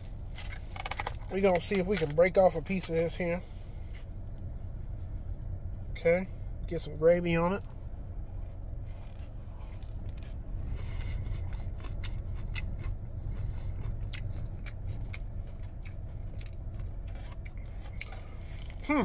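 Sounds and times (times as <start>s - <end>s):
crunchy chewing: 0.0s - 4.7s, 8.3s - 18.9s
steady low car hum: 0.0s - 19.0s.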